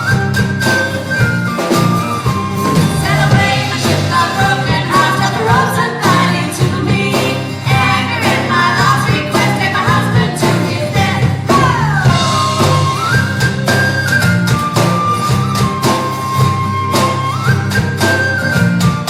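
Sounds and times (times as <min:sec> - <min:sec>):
live band playing: 0:00.0 - 0:19.0
sliding melody line: 0:00.0 - 0:19.0.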